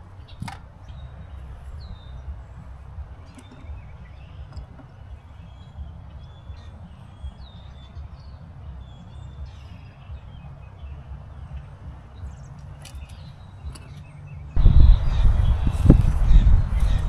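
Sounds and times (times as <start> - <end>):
birds chirping: 0.0 - 17.0
steady low rumble: 14.6 - 17.0.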